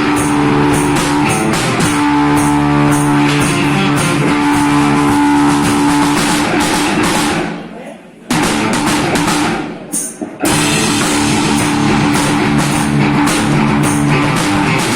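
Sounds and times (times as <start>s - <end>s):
electric guitar chords: 0.0s - 7.2s, 10.4s - 14.9s
bass guitar: 0.0s - 7.7s, 8.3s - 14.9s
drum kit playing: 0.0s - 14.9s.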